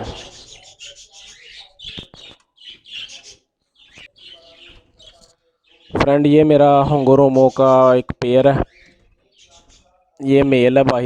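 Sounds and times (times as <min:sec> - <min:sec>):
parrots chirping: 0:00.0 - 0:06.0, 0:08.6 - 0:10.2.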